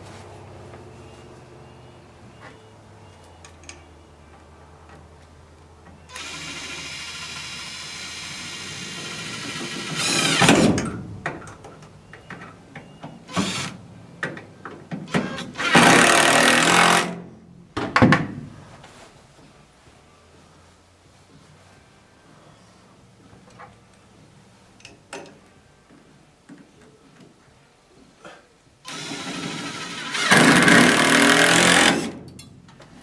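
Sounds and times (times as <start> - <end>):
power drill driving screws: 6.1 - 10.9, 13.3 - 13.8, 15.1 - 17.2, 28.9 - 32.2.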